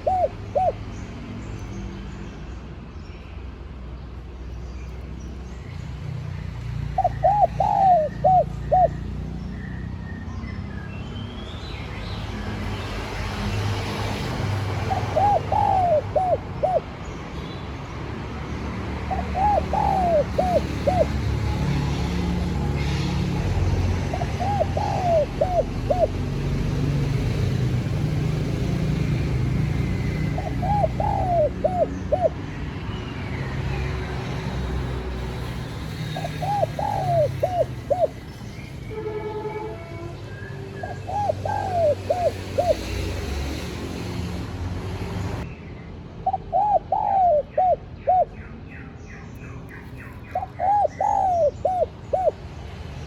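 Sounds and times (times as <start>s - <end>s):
dove cooing: 0.0s - 0.8s, 7.0s - 9.1s, 14.8s - 16.9s, 19.1s - 21.7s, 24.0s - 26.3s, 29.9s - 32.4s, 36.2s - 38.2s, 41.0s - 43.0s, 46.2s - 48.3s, 50.3s - 52.4s.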